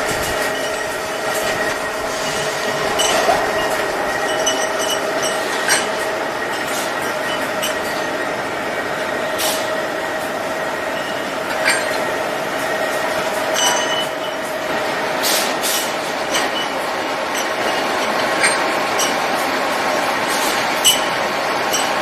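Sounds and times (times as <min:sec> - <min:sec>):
surface grinder grinding metal: 0:00.0 - 0:08.3.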